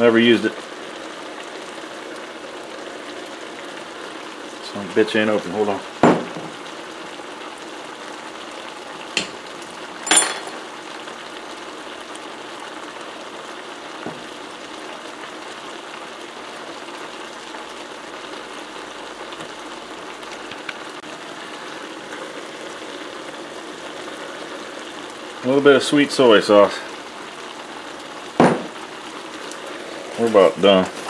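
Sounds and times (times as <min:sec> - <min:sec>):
stir fry sizzling in a wok: 0:00.0 - 0:31.0
sharp knocks: 0:06.0 - 0:06.6, 0:28.4 - 0:28.8.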